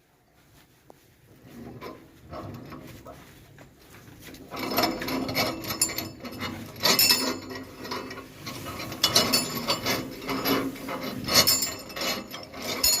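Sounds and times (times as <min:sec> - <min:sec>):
grass chopper blades clattering: 0:04.2 - 0:13.0.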